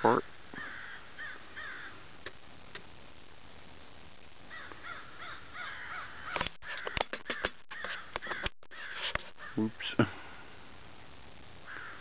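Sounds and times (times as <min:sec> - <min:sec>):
harsh bird calls: 0:00.6 - 0:02.0, 0:04.5 - 0:10.0
camera handling clicks and knocks: 0:06.4 - 0:08.5.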